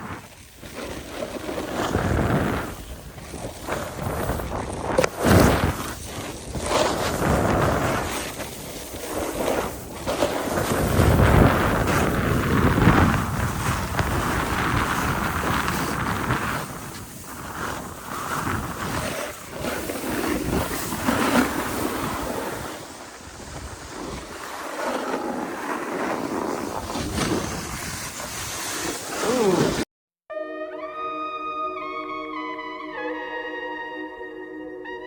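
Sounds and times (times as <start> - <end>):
snowboard edges scraping snow: 0.0 - 29.9
wind buffeting microphone: 1.8 - 8.4, 9.8 - 24.3.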